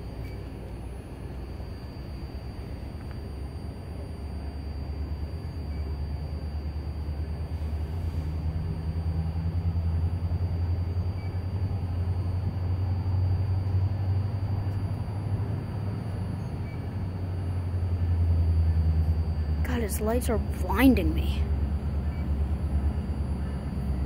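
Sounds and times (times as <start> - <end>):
train rumbling: 6.3 - 24.0.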